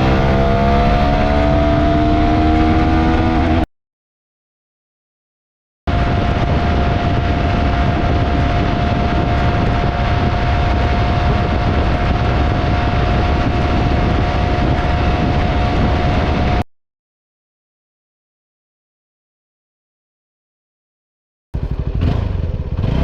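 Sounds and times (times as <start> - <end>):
motorcycle engine running: 0.0 - 3.7, 5.9 - 16.6, 21.6 - 23.0
rush of riding wind: 0.0 - 3.7, 5.9 - 16.6, 21.6 - 23.0
steady whine: 5.9 - 16.6.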